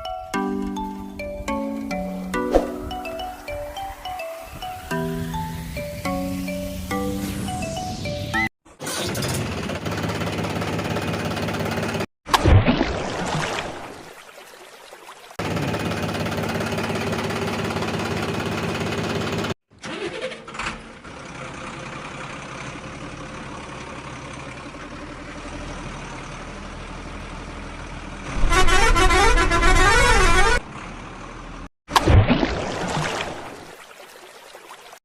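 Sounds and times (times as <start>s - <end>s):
engine drone: 15.4s - 19.6s
musical horn tune: 28.4s - 30.6s.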